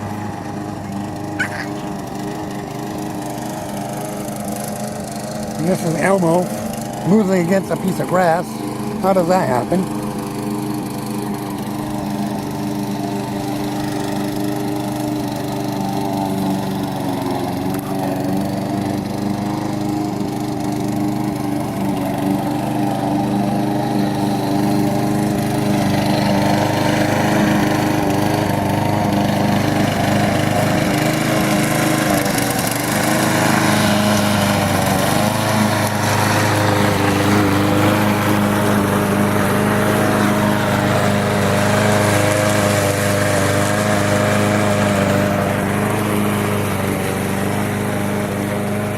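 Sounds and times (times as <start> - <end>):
small petrol engine running: 0.0 - 48.9.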